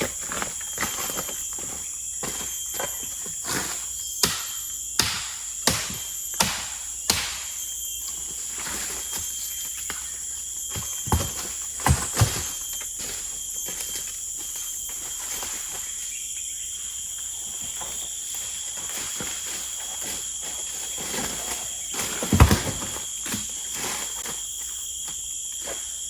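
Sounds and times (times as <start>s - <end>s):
shrill insect drone: 0.0s - 26.0s
sharp knocks: 4.2s - 7.6s.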